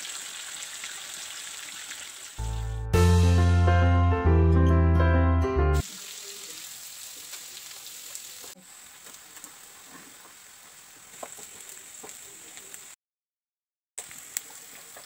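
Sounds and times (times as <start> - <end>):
shallots sizzling in oil: 0.0 - 2.7, 5.8 - 13.0, 14.0 - 15.0
background music: 2.4 - 5.8
oil crackles and pops: 5.8 - 13.0, 14.0 - 15.0.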